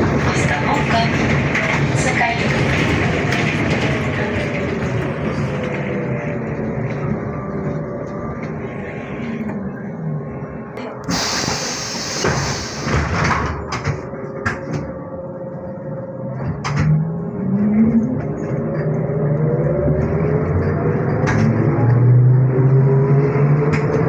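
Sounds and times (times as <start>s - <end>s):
pneumatic doors hissing shut: 11.1s - 13.6s.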